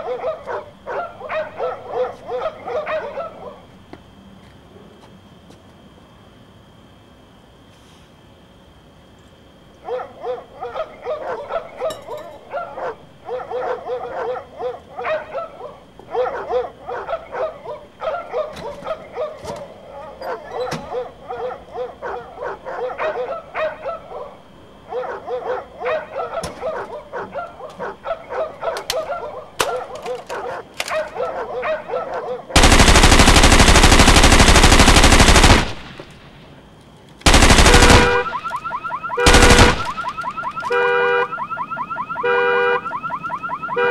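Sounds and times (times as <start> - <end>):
dog barking: 0.0 - 3.8, 9.8 - 32.6
machine-gun fire: 32.6 - 36.4, 37.2 - 38.6, 39.2 - 40.4
car alarm: 37.3 - 43.9.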